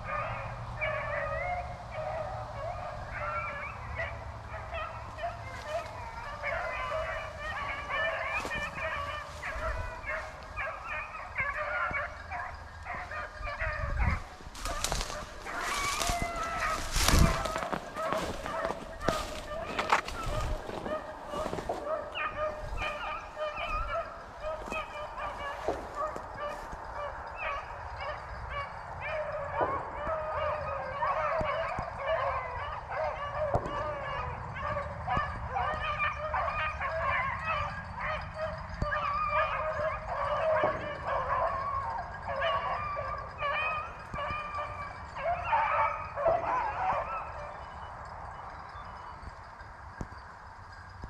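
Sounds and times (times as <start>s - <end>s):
hounds baying and yelping: 0.0s - 51.0s
crackling noise: 1.7s - 30.0s.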